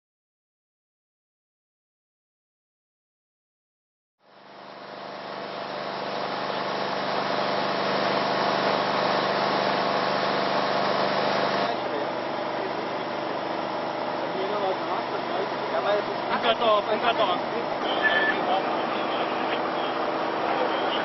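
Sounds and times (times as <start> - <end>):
vehicle engine running: 4.3 - 21.0.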